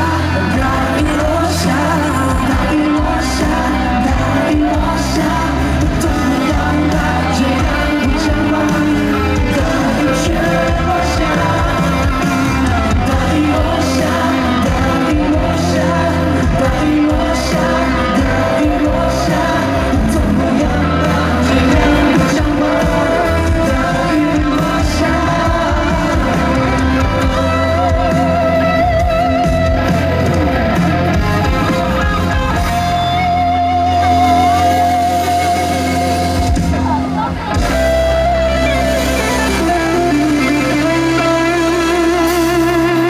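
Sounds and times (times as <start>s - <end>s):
live pop band playing: 0.0s - 43.0s
person singing: 0.0s - 43.0s.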